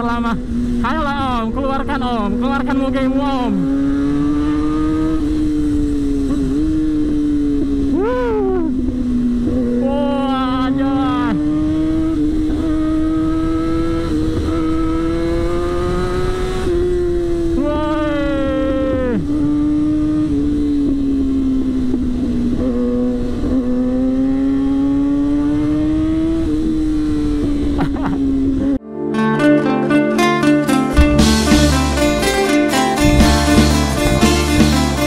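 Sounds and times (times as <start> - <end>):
motorcycle engine running high: 0.0 - 28.8, 30.9 - 35.0
another engine passing: 1.8 - 17.6, 31.0 - 35.0.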